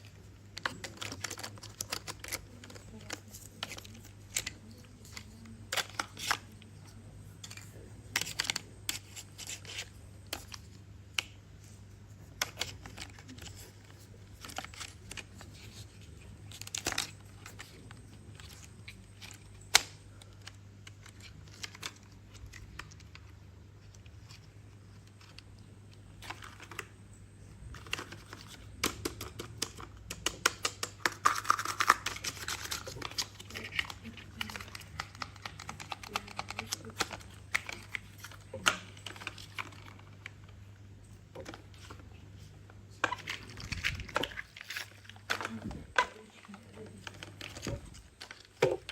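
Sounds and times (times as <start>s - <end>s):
faint low hum: 0.0s - 48.9s
clicks and taps of small objects: 27.7s - 40.4s.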